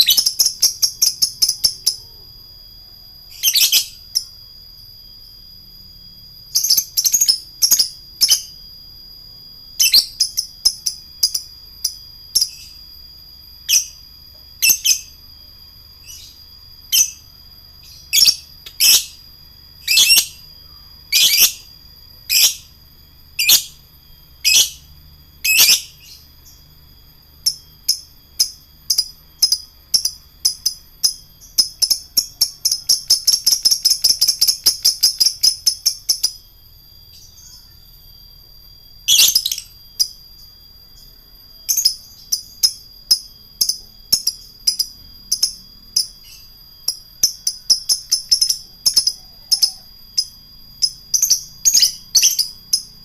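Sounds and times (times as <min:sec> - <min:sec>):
bird shrill chirps: 0:00.0 - 0:02.2, 0:03.2 - 0:04.4, 0:09.8 - 0:12.8, 0:15.9 - 0:22.8, 0:23.4 - 0:26.6, 0:37.1 - 0:38.0, 0:39.0 - 0:53.0
bird chattering trill: 0:17.9 - 0:19.2, 0:19.9 - 0:20.5, 0:21.1 - 0:21.7, 0:22.3 - 0:22.7, 0:23.4 - 0:23.8, 0:24.4 - 0:24.9, 0:25.5 - 0:26.3, 0:39.1 - 0:39.8, 0:47.3 - 0:53.0.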